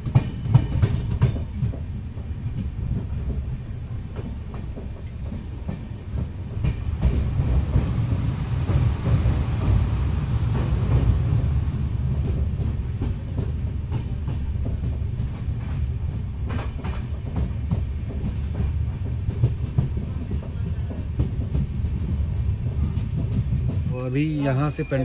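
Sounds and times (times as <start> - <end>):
wheels clicking over rail joints: 0.0 - 9.8
train low rumble: 0.0 - 25.0.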